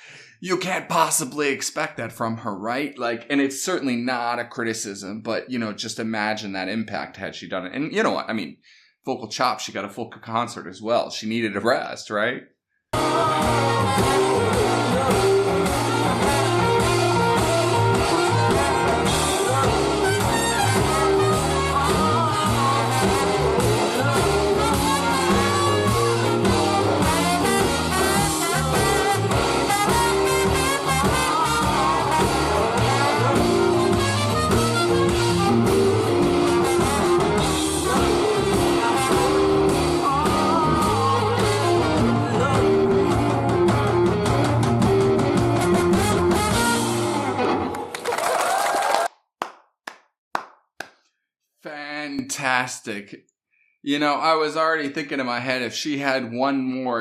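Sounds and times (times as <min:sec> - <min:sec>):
horns: 0:13.0 - 0:44.8, 0:45.6 - 0:47.3
live band playing jazz-blues: 0:13.0 - 0:47.5
guitar: 0:13.0 - 0:48.0.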